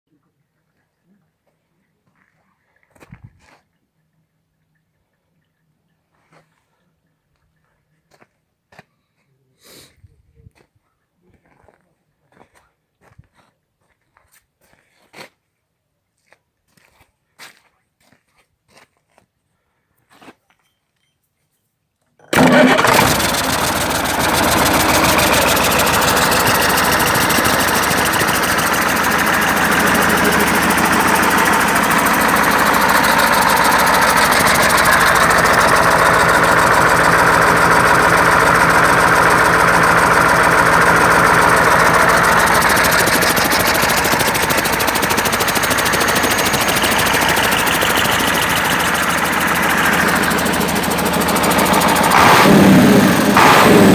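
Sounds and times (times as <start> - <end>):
diesel engine starting and idling: 22.3 - 53.9.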